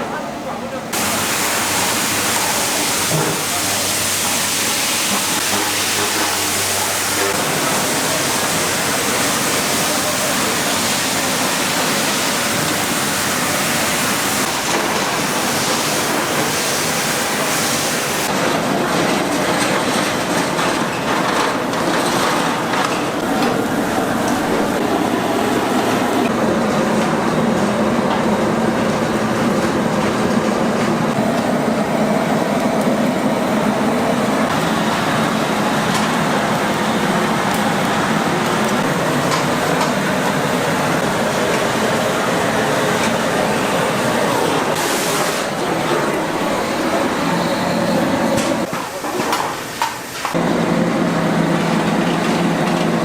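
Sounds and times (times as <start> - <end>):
food hissing and bubbling: 1.0 - 18.3.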